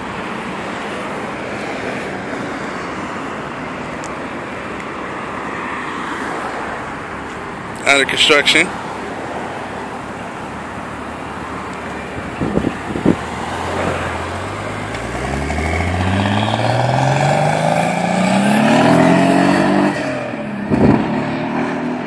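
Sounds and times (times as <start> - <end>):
car engine accelerating: 12.4 - 22.0.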